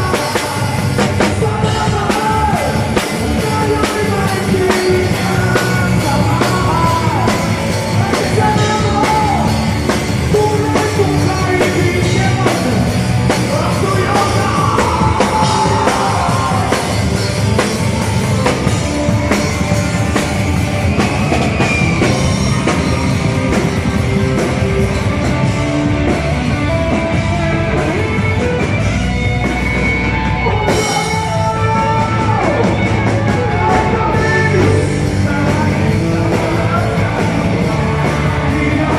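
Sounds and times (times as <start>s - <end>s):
person singing: 0.0s - 20.4s, 30.1s - 38.9s
rock band playing: 0.0s - 38.9s.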